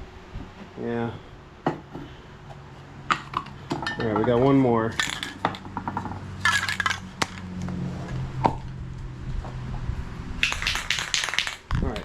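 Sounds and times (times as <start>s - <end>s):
steady low hum: 4.9s - 12.0s
spray can ball clinking: 5.0s - 5.6s, 6.4s - 7.5s, 10.4s - 12.0s.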